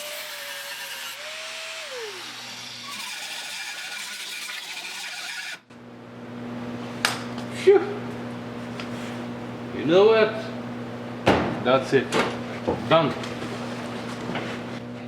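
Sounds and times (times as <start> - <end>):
power grinder grinding metal: 0.0 - 5.6.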